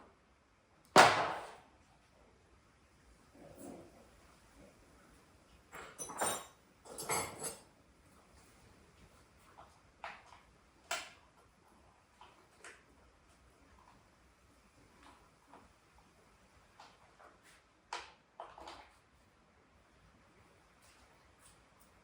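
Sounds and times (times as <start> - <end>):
metal objects clinking: 5.9 - 7.6.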